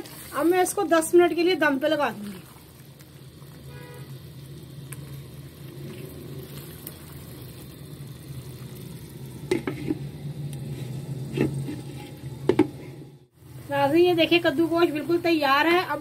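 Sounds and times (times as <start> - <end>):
curry sizzling in a pan: 0.0 - 16.0
spatula scraping a pan: 9.5 - 13.0.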